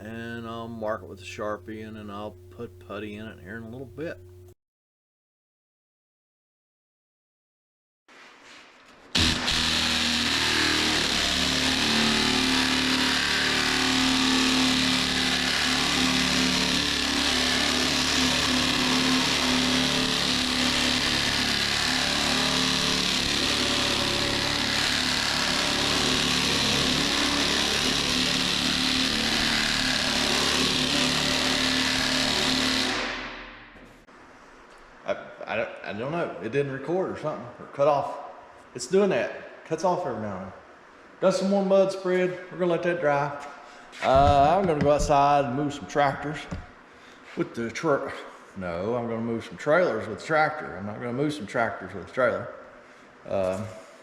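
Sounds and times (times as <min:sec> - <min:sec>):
sander running: 0:09.2 - 0:33.5.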